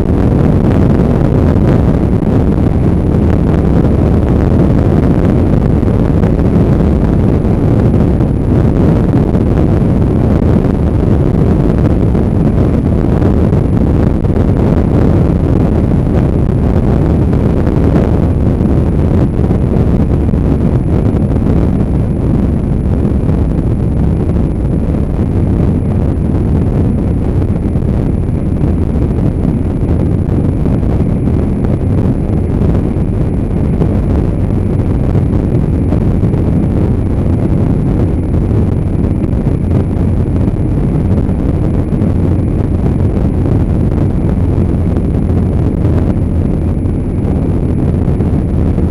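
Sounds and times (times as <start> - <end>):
motorcycle running: 0.0 - 48.9
wind rush on microphone: 0.0 - 48.9.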